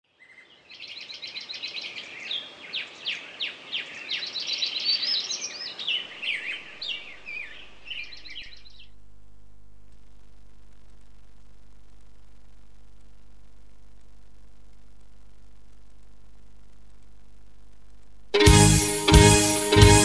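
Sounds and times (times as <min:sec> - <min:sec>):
birdsong: 0:00.1 - 0:09.0
steady low hum: 0:06.8 - 0:18.4.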